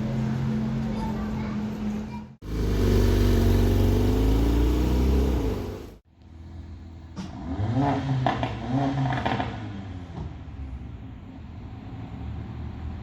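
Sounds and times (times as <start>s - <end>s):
supercar engine revving up: 2.4s - 6.0s.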